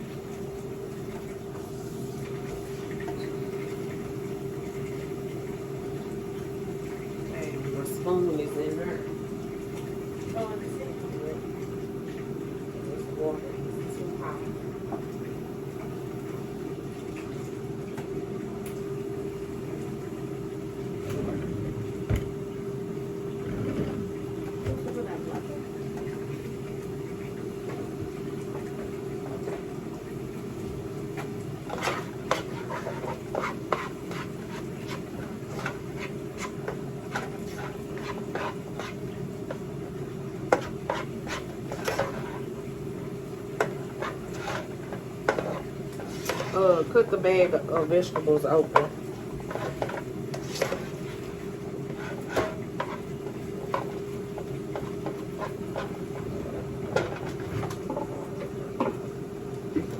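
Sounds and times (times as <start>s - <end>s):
low mechanical hum: 0.0s - 59.9s.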